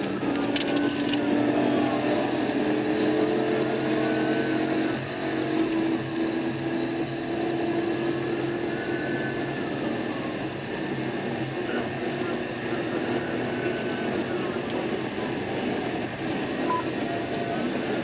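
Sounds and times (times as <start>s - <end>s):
car engine and road noise: 0.0s - 18.0s
police siren wailing: 8.0s - 18.0s.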